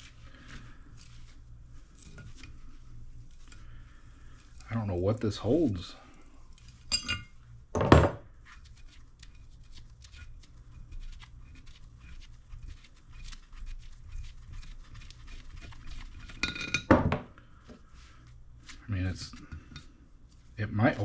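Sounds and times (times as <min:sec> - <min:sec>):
metallic clinks: 0:06.9 - 0:07.3.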